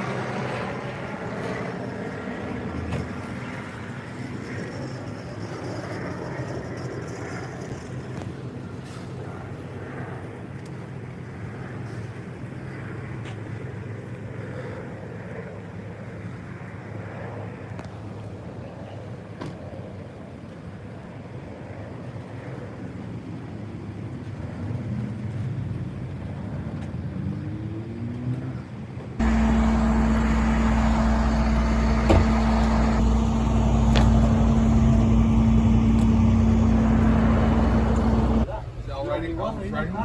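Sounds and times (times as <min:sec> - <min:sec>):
motor vehicle rumble: 0:29.2 - 0:38.8.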